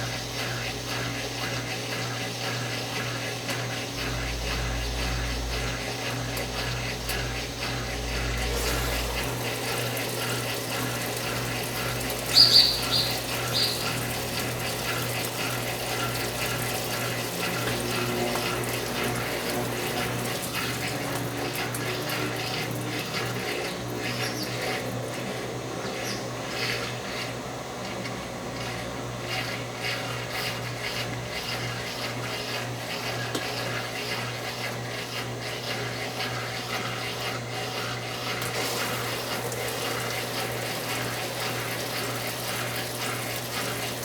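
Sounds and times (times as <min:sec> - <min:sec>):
water running in washing machine: 0:00.0 - 0:44.0
electrical hum: 0:02.4 - 0:35.5, 0:37.2 - 0:44.0
high chirps: 0:12.3 - 0:14.0.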